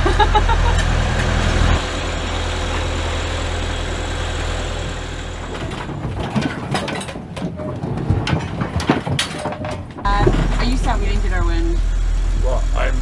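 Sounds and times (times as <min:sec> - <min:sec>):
boat engine droning: 0:00.0 - 0:06.4, 0:10.1 - 0:13.0.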